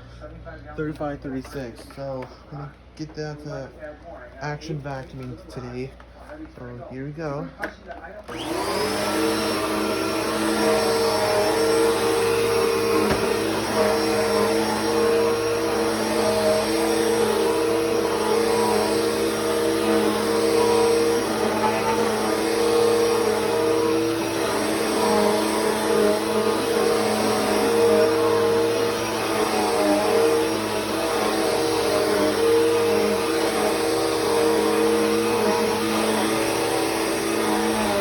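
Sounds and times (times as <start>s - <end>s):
vacuum cleaner running: 8.2s - 38.0s.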